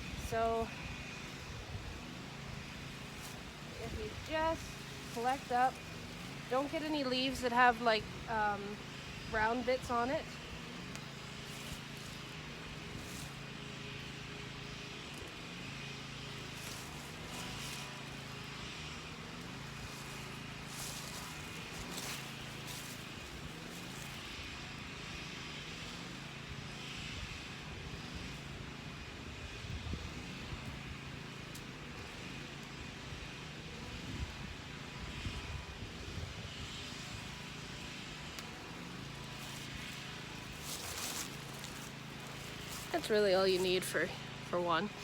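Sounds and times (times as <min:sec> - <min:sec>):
distant engine hum: 0:00.0 - 0:45.0
foliage rustling and snapping: 0:02.6 - 0:07.3, 0:16.3 - 0:18.4, 0:19.4 - 0:24.5, 0:37.8 - 0:43.9.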